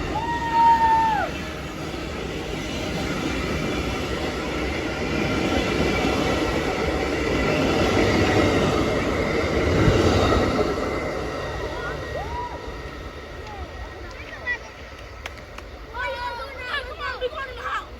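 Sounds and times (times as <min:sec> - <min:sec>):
passenger train wheels on rails: 0:00.0 - 0:17.9.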